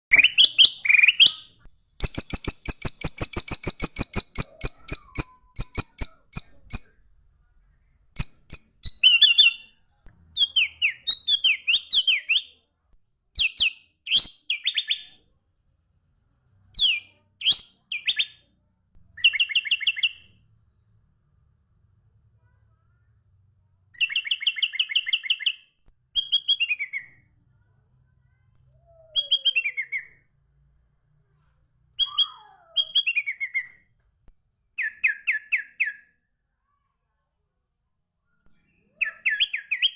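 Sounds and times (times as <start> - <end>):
songbird singing: 0.1 - 7.0, 8.1 - 9.8.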